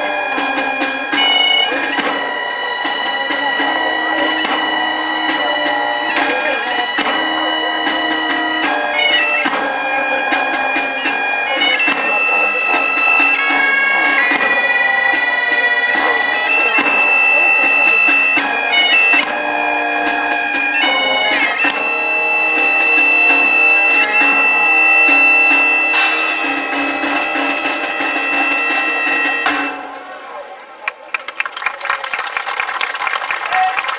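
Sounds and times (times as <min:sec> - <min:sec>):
reedy wind instrument melody: 0:00.0 - 0:31.0.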